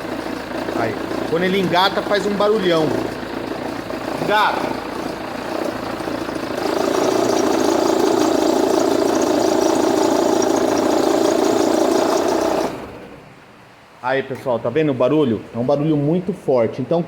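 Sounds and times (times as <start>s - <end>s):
car engine running: 0.0s - 13.2s
accessory belt drive noise: 0.0s - 13.3s.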